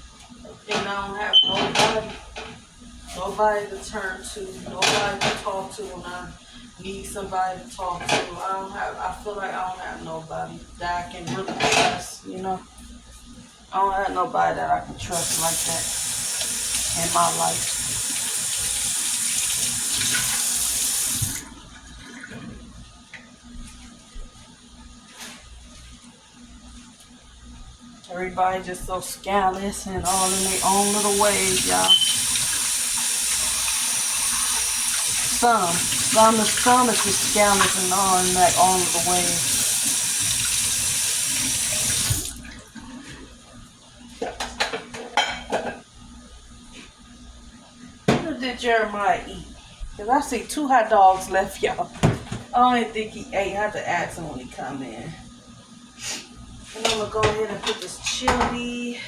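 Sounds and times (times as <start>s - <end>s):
tap running water into sink: 15.1s - 21.4s, 30.0s - 42.4s.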